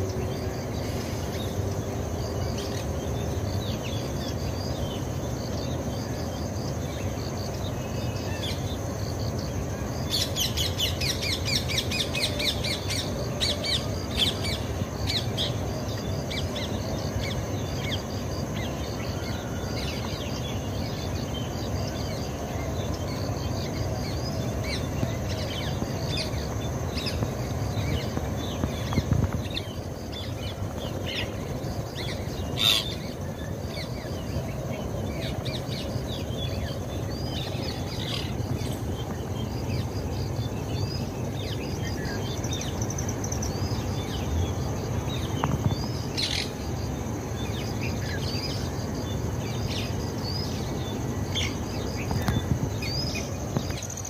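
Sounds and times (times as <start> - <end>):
low background noise: 0.0 - 54.0
birds chirping and calling: 21.7 - 44.6.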